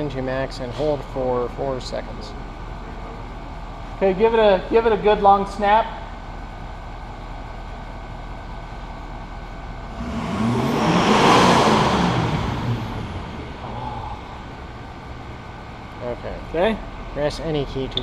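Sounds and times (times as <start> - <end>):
rushing exhaust: 9.4 - 17.5
diesel engine revving: 9.8 - 16.0.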